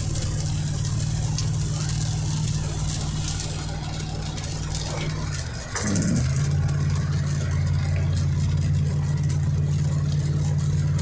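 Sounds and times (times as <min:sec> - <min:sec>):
car engine drone from inside cabin: 0:00.0 - 0:11.0.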